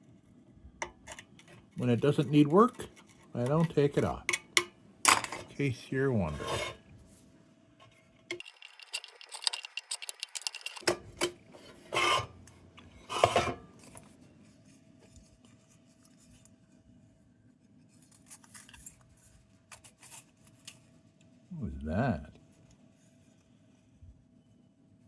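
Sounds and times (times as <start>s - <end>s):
small metal clicks and scraping: 8.3s - 11.4s.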